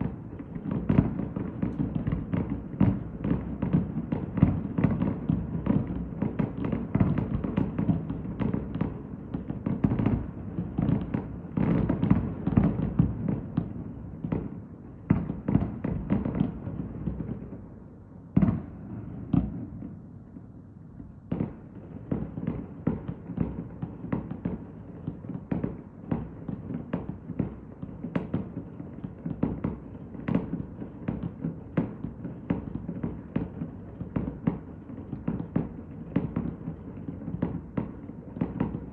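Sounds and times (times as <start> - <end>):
fireworks booms and bangs: 0.0 - 17.7, 18.3 - 20.5, 21.3 - 38.9.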